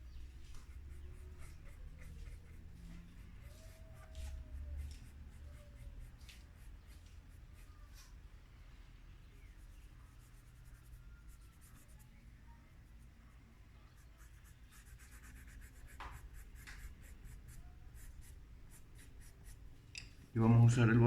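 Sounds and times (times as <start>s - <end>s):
drawing stick scratching on paper: 0.4s - 8.2s, 9.4s - 12.1s, 13.9s - 19.6s.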